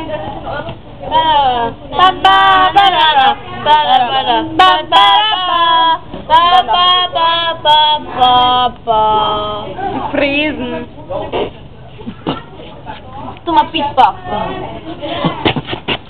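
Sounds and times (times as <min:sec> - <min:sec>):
young female voice singing: 0:01.0 - 0:09.9.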